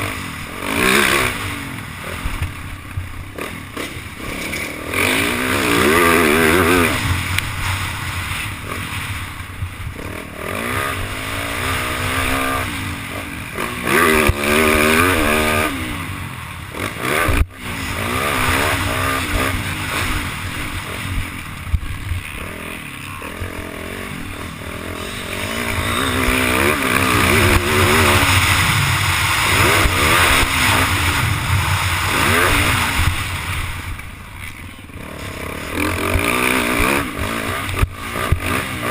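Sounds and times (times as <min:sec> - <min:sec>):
motocross bike engine revving: 0:00.0 - 0:38.9
wind rushing over microphone: 0:24.6 - 0:34.3.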